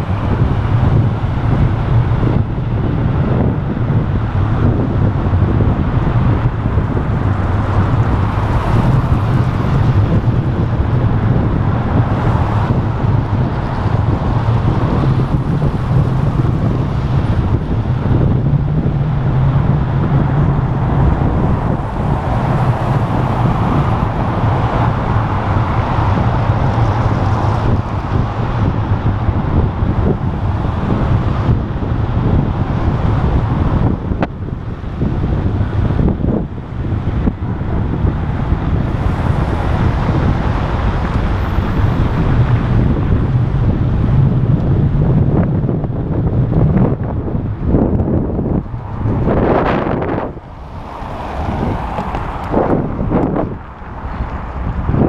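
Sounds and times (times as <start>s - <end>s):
road traffic: 0.0s - 55.0s
wind buffeting microphone: 0.0s - 55.0s.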